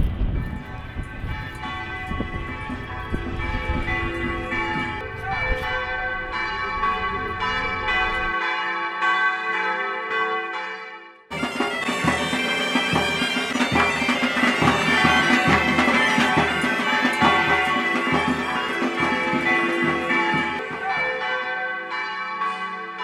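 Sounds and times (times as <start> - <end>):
bagpipe melody with drones: 11.3 - 20.8.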